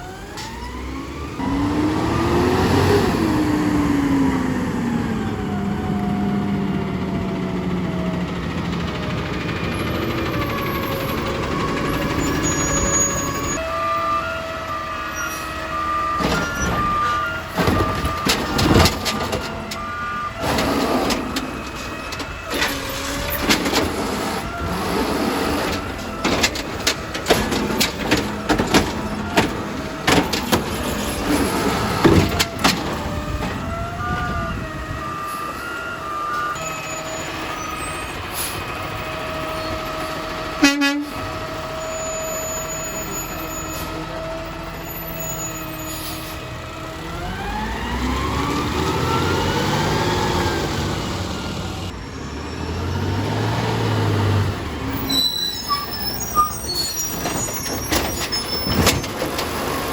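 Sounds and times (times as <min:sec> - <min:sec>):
truck engine revving: 0:00.0 - 0:59.9
hydraulic whine: 0:00.1 - 0:44.0
garbage truck clanks and knocks: 0:00.3 - 0:13.7, 0:15.5 - 0:34.9, 0:53.2 - 0:59.9.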